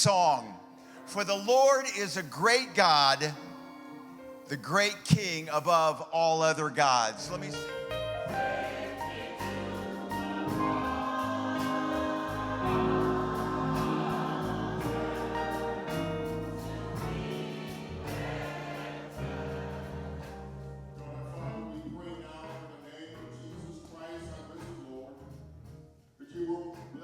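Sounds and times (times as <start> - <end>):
gospel choir singing: 0.0 - 25.4
instrumental accompaniment: 7.1 - 24.8
percussion beat: 7.3 - 20.6, 22.4 - 27.0.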